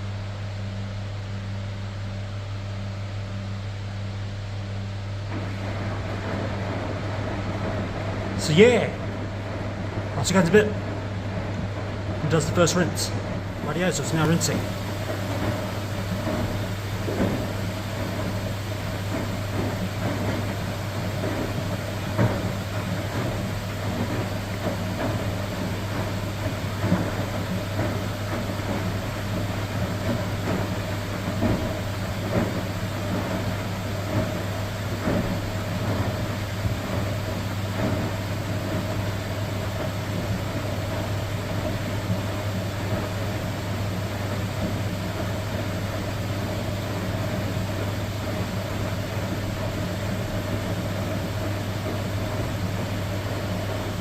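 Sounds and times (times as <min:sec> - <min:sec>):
washing machine hum: 0:00.0 - 0:54.0.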